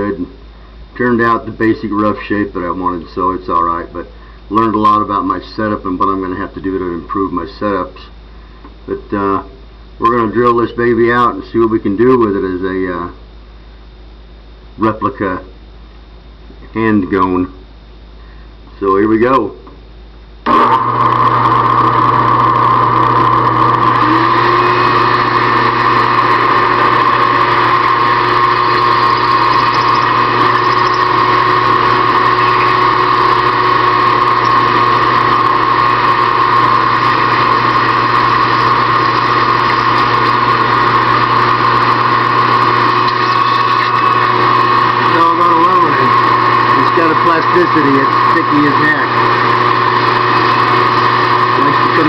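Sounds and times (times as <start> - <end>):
drill bit cutting metal: 20.5 - 52.0
electric motor whining: 20.5 - 52.0.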